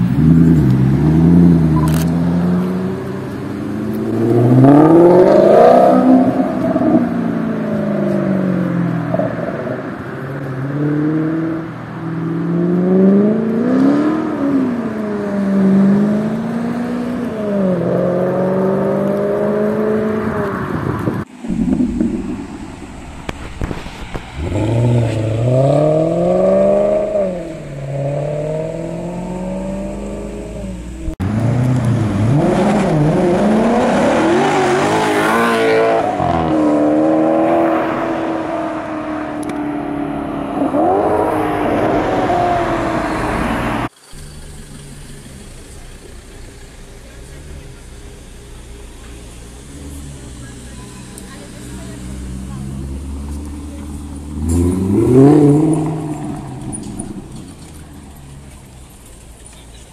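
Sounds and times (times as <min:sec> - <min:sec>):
car engine accelerating hard: 0:00.0 - 0:59.9.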